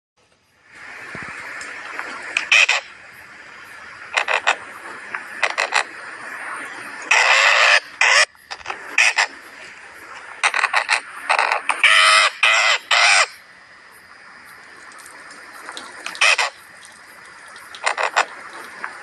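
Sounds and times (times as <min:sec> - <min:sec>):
steady background hiss: 0:00.2 - 0:19.0
birds harsh calls: 0:02.3 - 0:03.0, 0:07.0 - 0:09.4, 0:10.3 - 0:13.4, 0:16.1 - 0:16.6.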